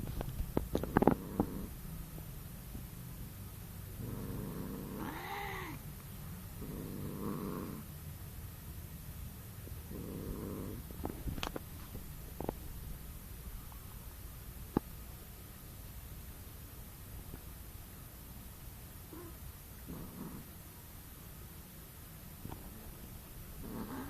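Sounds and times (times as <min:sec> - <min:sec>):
cat purring: 0:00.0 - 0:02.9, 0:03.6 - 0:05.8, 0:06.4 - 0:07.9, 0:09.6 - 0:13.8, 0:19.0 - 0:21.0, 0:22.3 - 0:24.0.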